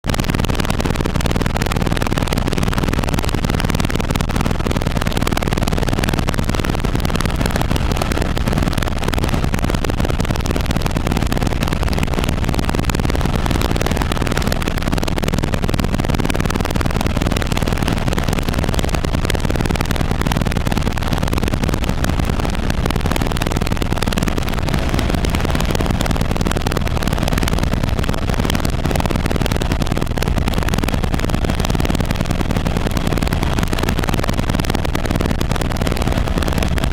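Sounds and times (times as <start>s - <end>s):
helicopter rotor and engine: 22.5s - 27.5s.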